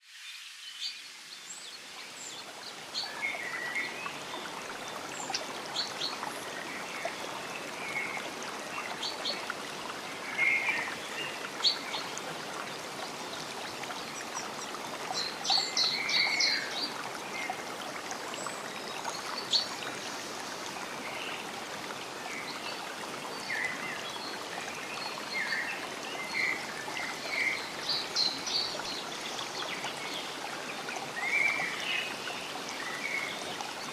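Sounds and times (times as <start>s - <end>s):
stream trickling: 0.0s - 33.9s.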